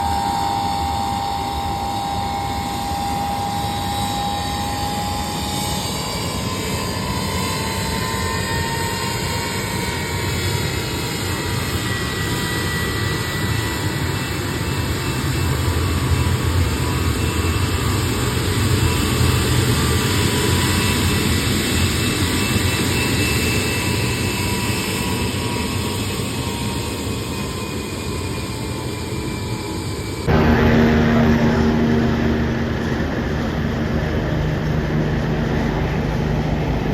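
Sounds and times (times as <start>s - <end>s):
jet engines running: 0.0s - 36.9s
louder engine sound: 30.2s - 36.9s
whining tones: 30.3s - 36.9s.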